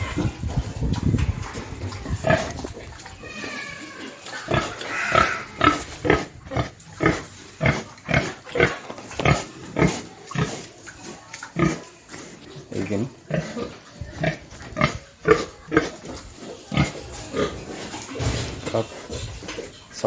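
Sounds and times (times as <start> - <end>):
pig grunting: 0.0 - 10.8, 11.5 - 20.0
pig squealing: 2.3 - 6.7.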